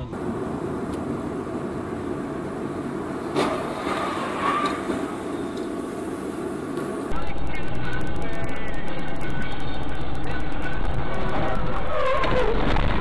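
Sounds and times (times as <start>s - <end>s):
car driving road noise: 0.0s - 7.2s.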